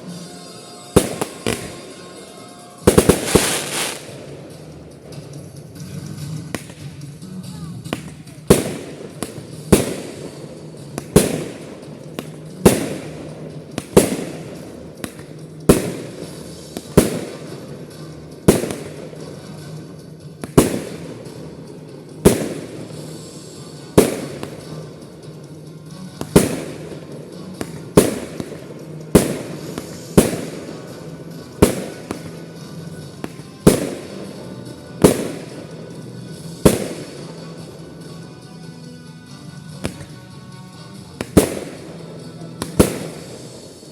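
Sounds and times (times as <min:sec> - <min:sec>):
firework shells bursting: 0:02.9 - 0:05.4, 0:07.9 - 0:25.5.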